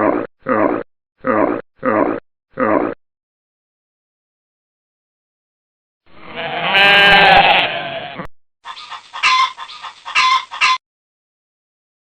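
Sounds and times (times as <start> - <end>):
short repeated animal calls: 8.7 - 10.8.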